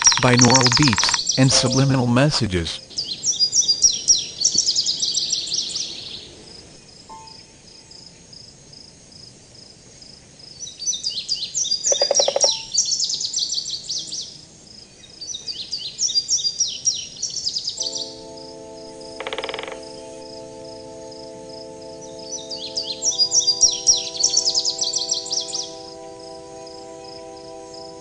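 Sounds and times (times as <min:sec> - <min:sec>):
chord of held tones: 0:00.0 - 0:03.0, 0:17.8 - 0:28.0
songbird chirping: 0:00.0 - 0:28.0
faint pulsing insect chirr: 0:02.9 - 0:28.0.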